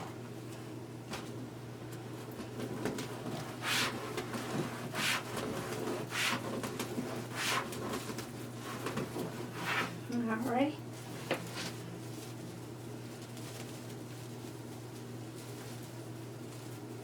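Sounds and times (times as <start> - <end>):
mesh and burlap rustling: 10.4 - 17.0.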